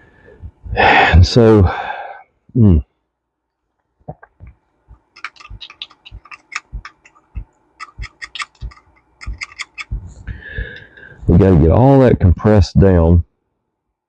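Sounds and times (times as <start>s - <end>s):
light clicks and taps of metal parts: 4.4s - 10.0s.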